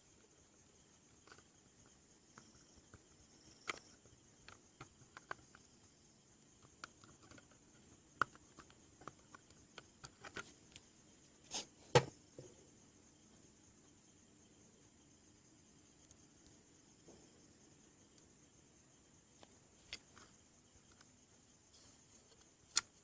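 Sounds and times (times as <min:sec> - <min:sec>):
background hiss: 0:00.0 - 0:23.0
knocks: 0:11.9 - 0:12.6.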